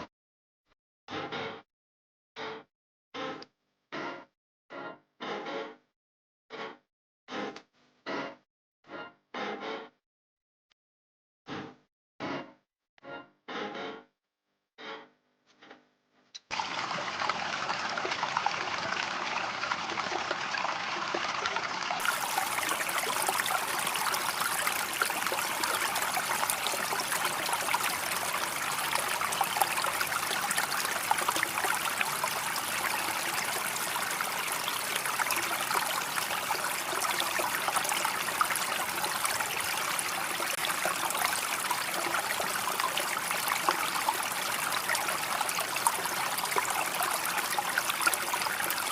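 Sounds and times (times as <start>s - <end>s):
water pouring and splashing: 16.5s - 48.9s.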